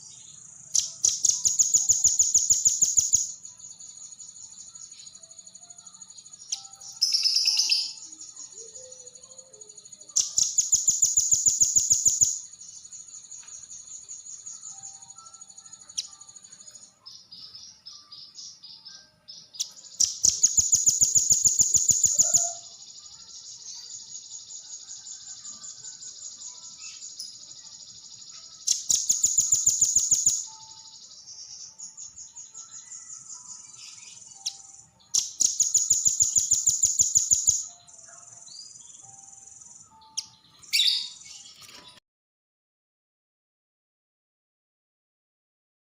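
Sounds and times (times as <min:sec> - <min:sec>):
soft fast bird chattering: 0:20.0 - 0:22.7.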